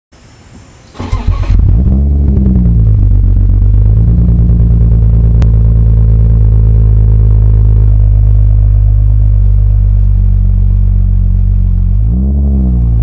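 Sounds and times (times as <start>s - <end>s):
engine starter cranking: 0.9s - 2.0s
car engine fast idle: 0.9s - 3.8s.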